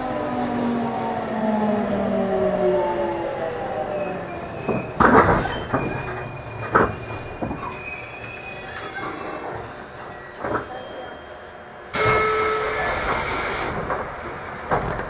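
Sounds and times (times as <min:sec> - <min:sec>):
train wheel and brake noise: 0:03.8 - 0:15.0
thin high brake squeal: 0:04.0 - 0:12.9
electric train inverter whine: 0:09.4 - 0:14.3
loud noisy bursts: 0:12.0 - 0:13.9.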